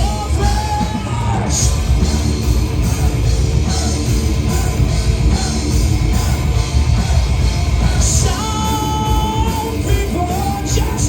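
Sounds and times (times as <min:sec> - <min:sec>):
live metal band playing: 0:00.0 - 0:11.0.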